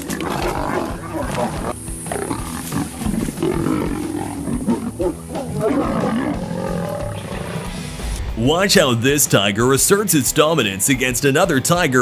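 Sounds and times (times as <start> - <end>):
lions growling: 0.0 - 8.0.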